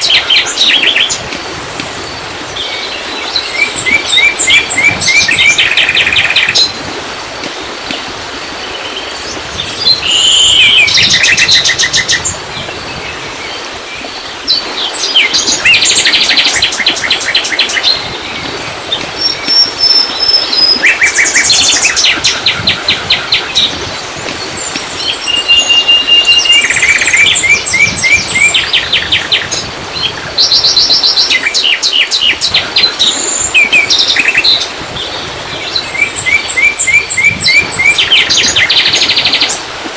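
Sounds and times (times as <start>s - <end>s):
songbirds chirping and trilling: 8.6s - 39.7s.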